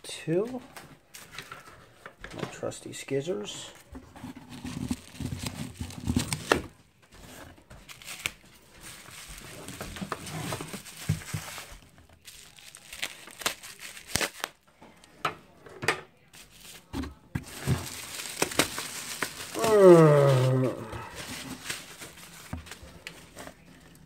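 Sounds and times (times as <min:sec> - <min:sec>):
plastic wrapping crinkling: 0:04.3 - 0:06.8, 0:07.8 - 0:14.6, 0:16.3 - 0:24.0
scissors cutting packaging: 0:04.5 - 0:06.7, 0:07.8 - 0:08.4, 0:09.0 - 0:14.6, 0:17.4 - 0:24.0.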